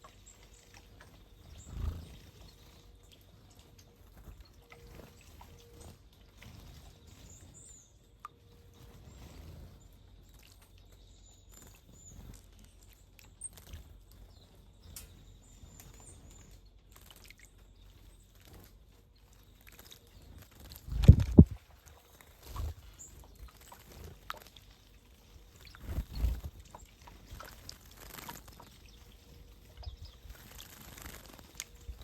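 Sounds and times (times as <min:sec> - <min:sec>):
small birds chirping: 0:00.0 - 0:32.0
bird splashing and fluttering: 0:15.8 - 0:32.0.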